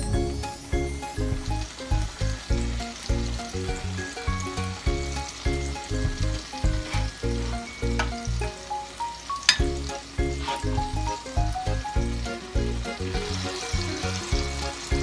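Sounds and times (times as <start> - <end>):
background music: 0.0 - 15.0
fish sizzling in a pan: 0.0 - 15.0
spatula moving through pan: 0.4 - 8.8, 9.4 - 11.6.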